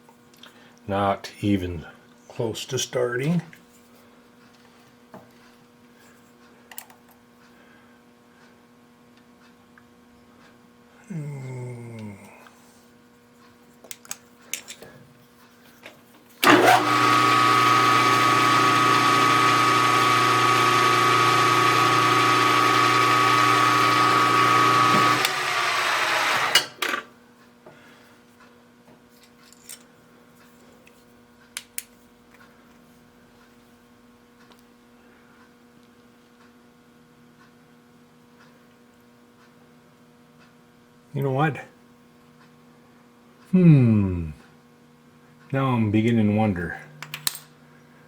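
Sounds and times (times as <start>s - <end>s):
milling machine motor whining: 16.4s - 27.0s.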